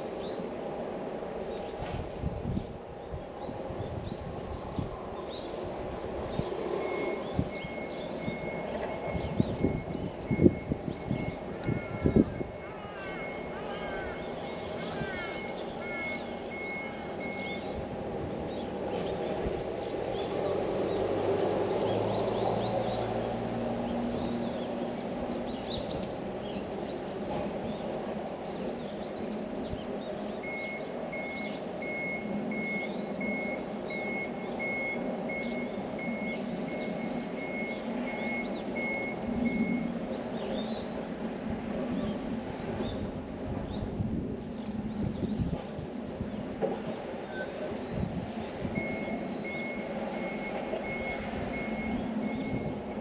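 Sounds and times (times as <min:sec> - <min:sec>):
small birds chirping: 0:02.5 - 0:41.1
vehicle reversing alarm beeping: 0:06.0 - 0:18.6, 0:30.3 - 0:40.7, 0:48.3 - 0:53.0.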